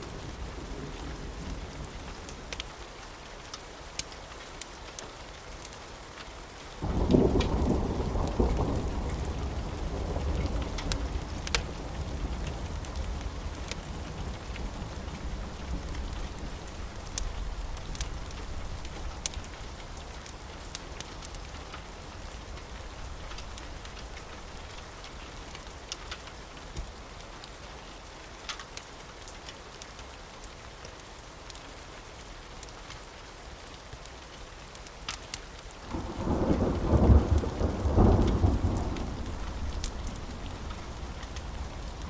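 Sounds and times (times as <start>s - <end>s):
steady rain falling: 0.0s - 42.0s
thunder rumbling: 6.8s - 19.8s, 35.9s - 42.0s.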